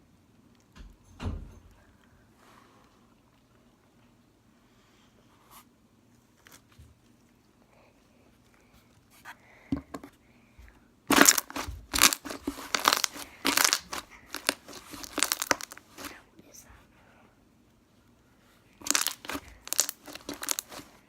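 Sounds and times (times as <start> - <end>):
slime ticking: 11.1 - 16.1, 18.8 - 20.9
slime crackling and popping: 11.1 - 16.2, 18.8 - 21.0.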